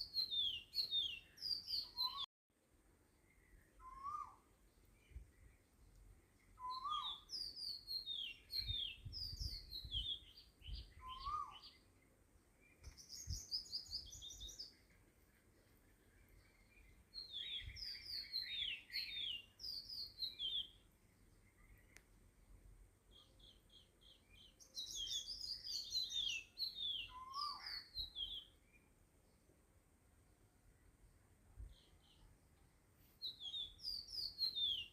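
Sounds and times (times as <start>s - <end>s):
small birds chirping: 0.0s - 2.3s, 3.0s - 29.8s, 30.6s - 34.9s
low rising bird whistles: 3.8s - 4.4s, 11.0s - 11.6s.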